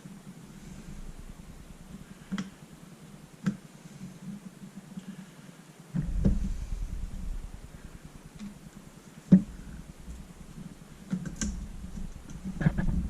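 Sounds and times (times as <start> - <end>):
low handling rumble: 0.0 - 3.4, 6.0 - 13.0.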